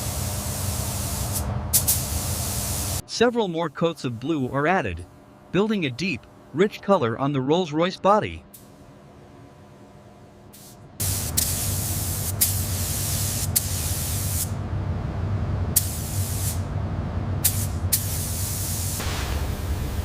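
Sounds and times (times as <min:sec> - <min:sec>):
paint spray gun hissing: 0:00.0 - 0:03.0, 0:10.6 - 0:14.5, 0:15.8 - 0:16.6, 0:17.4 - 0:19.6
steady low hum: 0:00.0 - 0:20.0.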